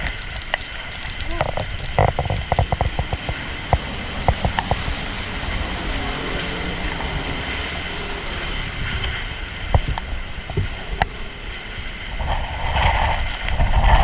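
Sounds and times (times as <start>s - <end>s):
sharp taps and knocks: 0.0s - 5.0s
rain and wind rushing: 0.0s - 14.0s.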